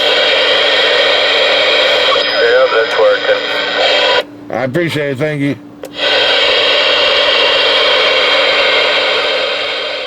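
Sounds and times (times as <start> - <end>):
radio static hiss: 0.0 - 5.1.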